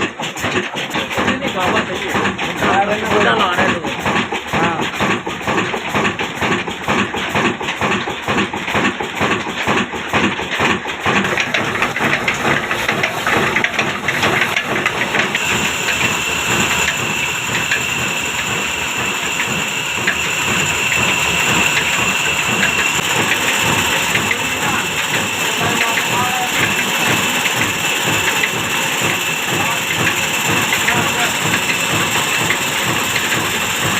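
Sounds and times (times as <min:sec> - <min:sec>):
diesel engine knocking: 0:00.0 - 0:33.9
steady high whine: 0:11.4 - 0:33.9.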